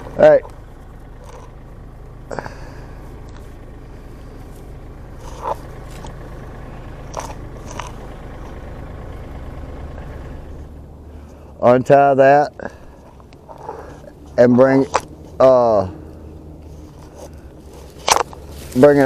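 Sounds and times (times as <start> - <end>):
tractor engine idling: 0.0 - 19.0
rope rustling and clicking: 16.6 - 19.0.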